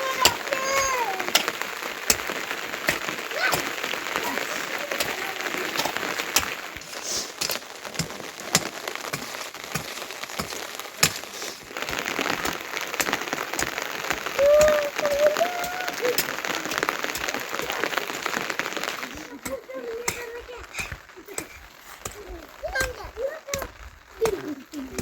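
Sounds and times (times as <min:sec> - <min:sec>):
heavy rain falling: 0:00.0 - 0:25.0
water drip clicks: 0:00.0 - 0:25.0.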